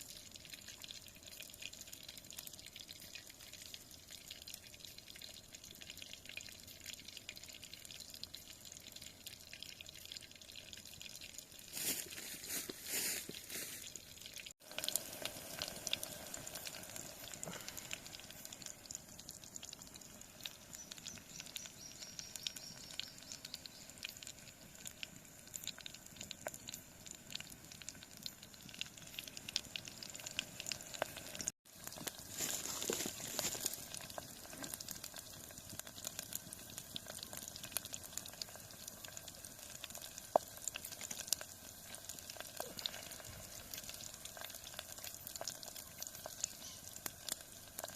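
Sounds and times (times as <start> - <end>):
campfire crackling and popping: 0.0 - 47.9
steak sizzling: 14.6 - 23.1, 24.0 - 47.9.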